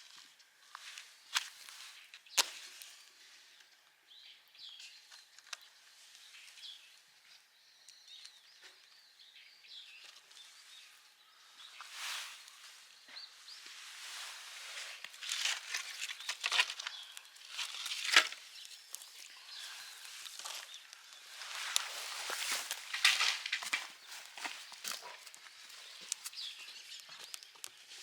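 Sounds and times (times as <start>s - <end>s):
rustling and crunching: 0.0s - 3.2s, 11.7s - 28.0s
faint bird chirps: 1.9s - 28.0s.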